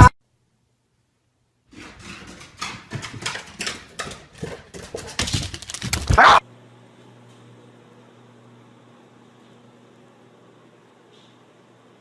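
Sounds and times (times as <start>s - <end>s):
dog claws clattering on wood: 1.7s - 6.2s.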